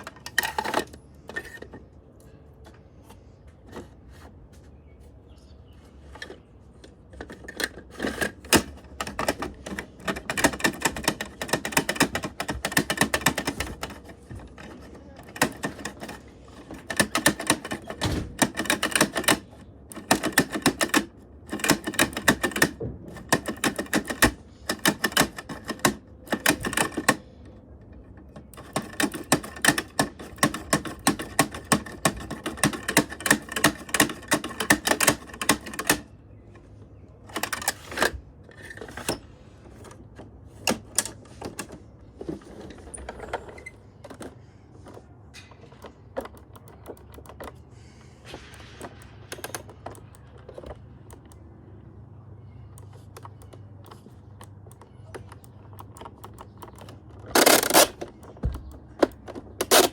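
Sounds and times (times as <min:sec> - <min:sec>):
rapid mechanical clicking: 0:07.1 - 0:36.2, 0:52.5 - 0:59.9.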